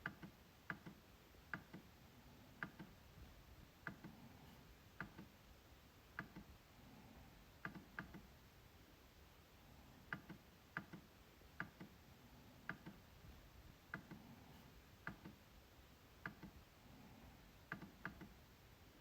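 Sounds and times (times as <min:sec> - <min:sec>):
trackpad clicks: 0:00.0 - 0:01.9, 0:02.6 - 0:03.0, 0:03.8 - 0:04.2, 0:05.0 - 0:05.3, 0:06.2 - 0:06.5, 0:07.6 - 0:08.3, 0:10.1 - 0:12.0, 0:12.6 - 0:13.0, 0:15.0 - 0:15.4, 0:16.2 - 0:16.6, 0:17.7 - 0:18.4.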